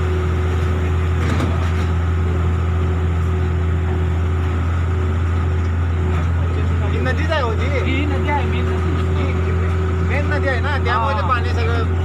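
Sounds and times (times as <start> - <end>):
engine droning steadily: 0.0 - 12.0.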